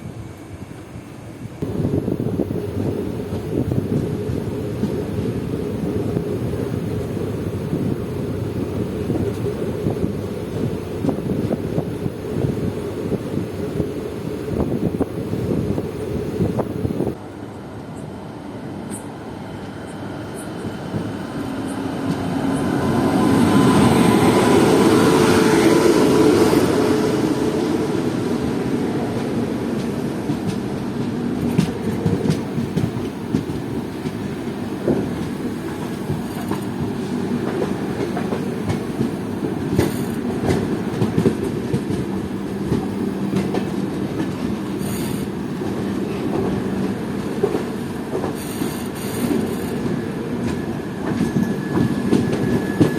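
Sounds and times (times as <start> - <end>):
train rumble and wheel-on-rail noise: 0.0 - 52.9
wheels clicking over rail joints: 34.9 - 45.3.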